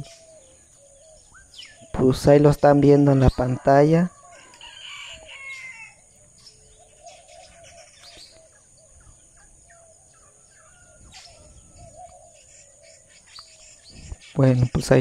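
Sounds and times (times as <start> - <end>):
low wavering bird call: 0.0 - 2.0, 4.1 - 14.1
birds chirping and calling: 0.0 - 15.0.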